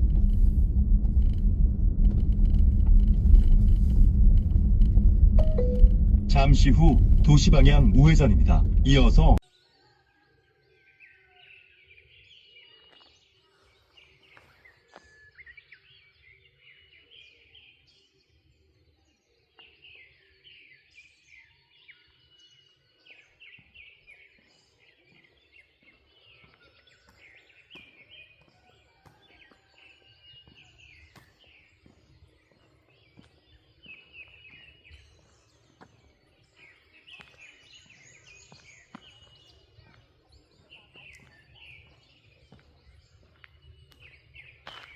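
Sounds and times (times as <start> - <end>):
low rumble: 0.0 - 9.4
small birds chirping: 6.6 - 44.9.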